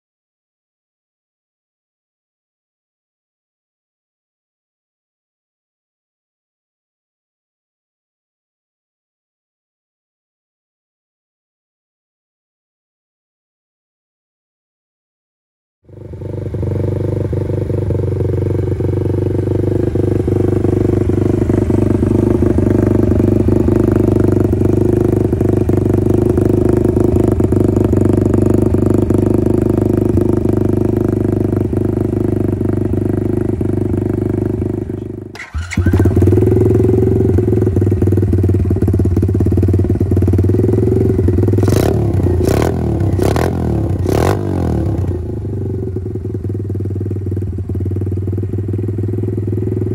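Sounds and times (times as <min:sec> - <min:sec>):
motorcycle engine idling and revving: 0:15.8 - 0:49.9.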